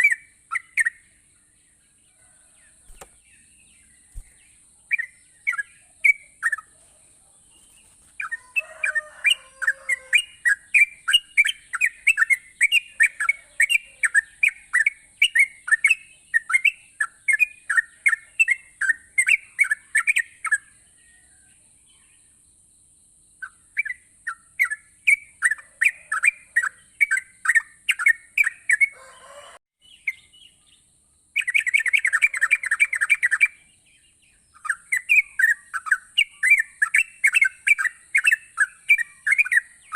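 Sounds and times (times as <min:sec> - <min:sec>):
bulbul singing bubbly chirps: 0:00.0 - 0:01.3.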